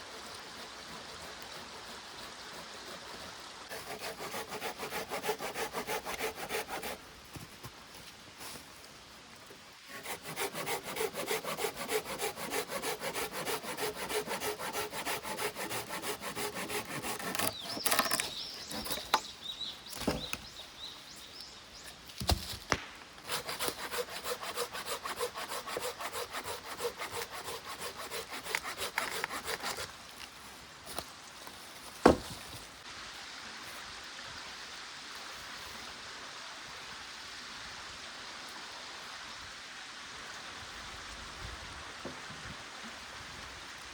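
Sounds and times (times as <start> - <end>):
hand saw cutting wood: 0.0 - 7.0, 9.9 - 19.3, 23.2 - 29.9.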